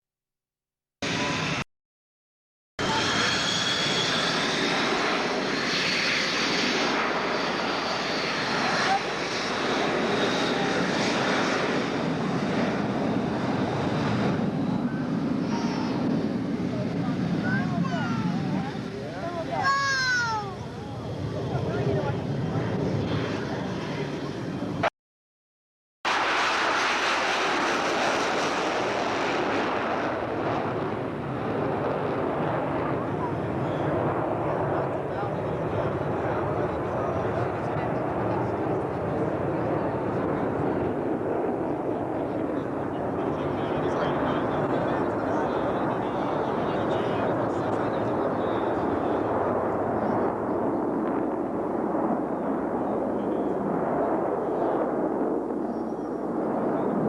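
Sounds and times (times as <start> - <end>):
aircraft engine rushing: 1.0 - 1.6, 2.8 - 24.9, 26.1 - 57.0.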